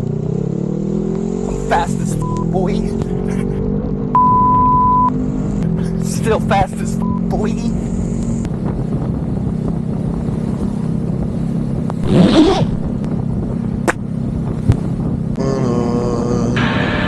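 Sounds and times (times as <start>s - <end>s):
motorcycle engine running: 0.0s - 4.2s, 5.1s - 15.3s
wind noise: 8.4s - 16.1s
rising whoosh: 12.0s - 13.1s.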